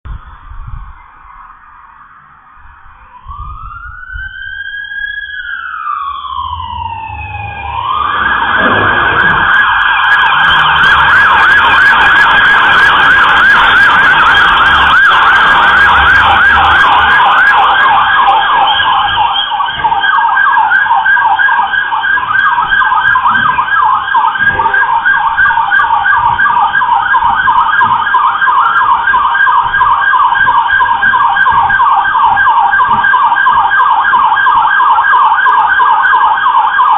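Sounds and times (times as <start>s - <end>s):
low rumble: 0.0s - 4.5s, 6.2s - 12.4s
police car siren: 0.1s - 36.9s.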